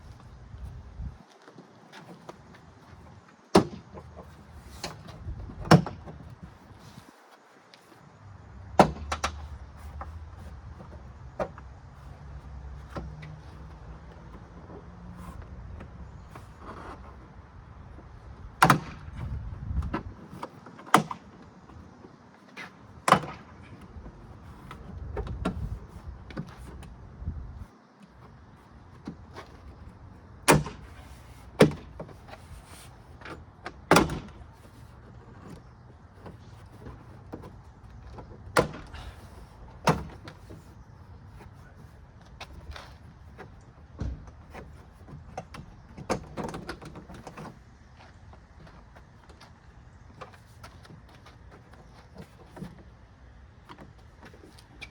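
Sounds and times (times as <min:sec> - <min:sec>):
handling noise: 0:00.0 - 0:54.9.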